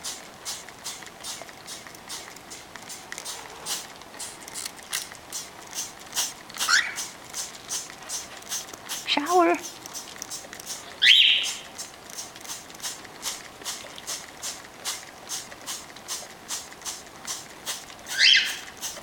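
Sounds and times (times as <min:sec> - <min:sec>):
spray bottle hissing squirts: 0:00.0 - 0:19.0
cockatiel squawks: 0:06.6 - 0:07.1, 0:11.0 - 0:11.6, 0:18.1 - 0:18.7.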